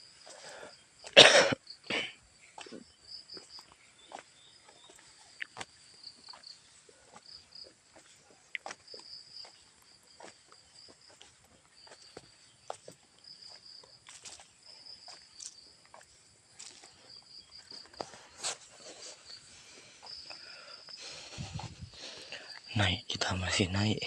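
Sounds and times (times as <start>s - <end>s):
insects chirping: 0.0s - 24.0s
person coughing: 1.1s - 2.2s
light footsteps on path: 2.3s - 22.8s.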